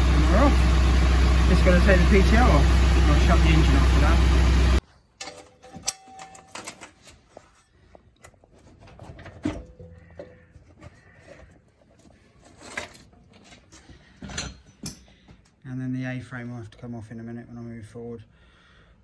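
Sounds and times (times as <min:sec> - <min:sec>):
metal parts clicking and knocking: 0:05.2 - 0:07.1.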